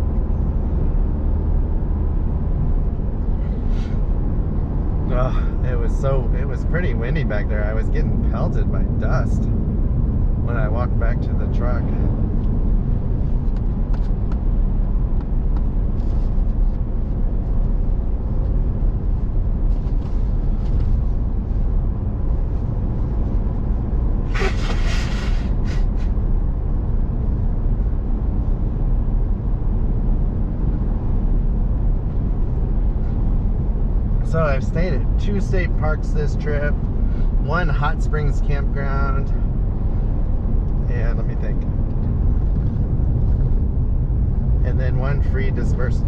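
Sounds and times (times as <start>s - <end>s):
road and engine rumble: 0.0s - 46.0s
short rush of hissing: 24.3s - 26.1s.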